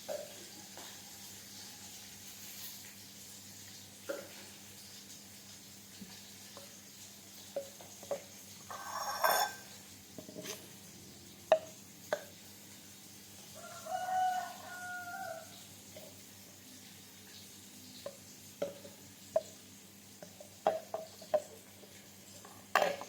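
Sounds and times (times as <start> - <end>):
rooster crowing: 13.5 - 15.6.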